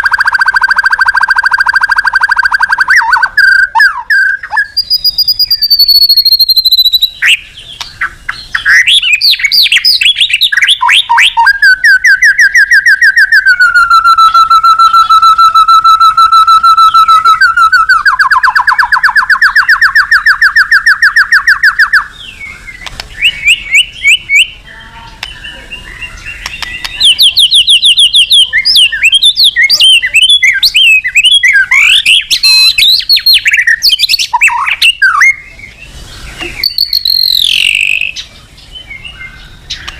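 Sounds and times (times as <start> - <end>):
songbird full song: 0.0 - 39.9.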